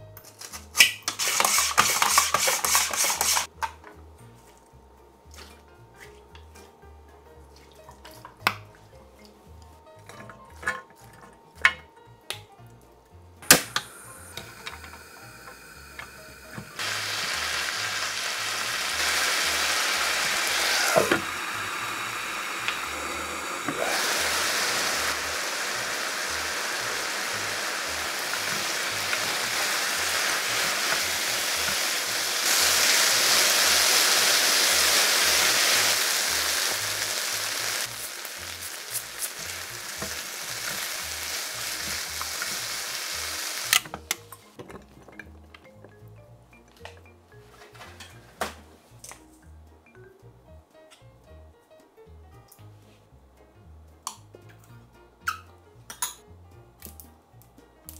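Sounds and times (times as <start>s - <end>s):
stirring knocks and scrapes: 1.1s - 4.6s
food sizzling in a frying pan: 13.5s - 43.9s.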